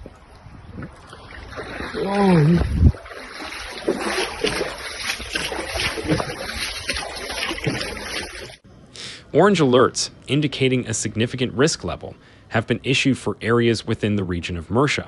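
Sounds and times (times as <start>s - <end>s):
rushing floodwater roar: 0.9s - 8.6s
person shouting: 2.0s - 2.8s.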